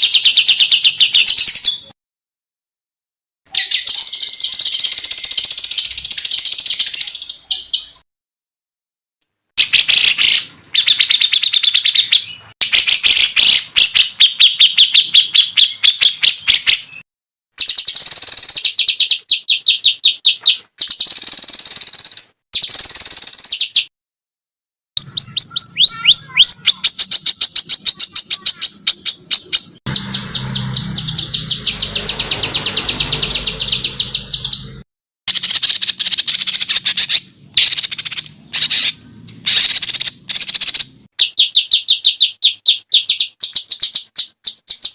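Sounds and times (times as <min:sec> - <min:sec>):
songbird chirps and trills: 0:03.5 - 0:08.0, 0:25.0 - 0:34.7.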